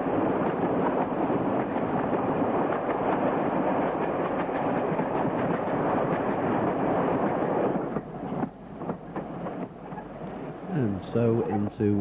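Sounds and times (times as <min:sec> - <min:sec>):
diesel train wheels rattling on rails: 0:00.0 - 0:12.0.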